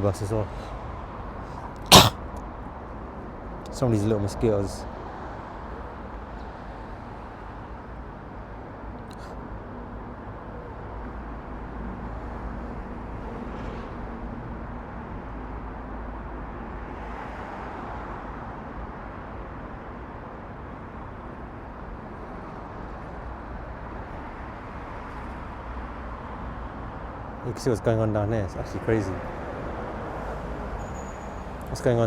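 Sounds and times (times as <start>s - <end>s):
road traffic noise: 28.7s - 32.0s.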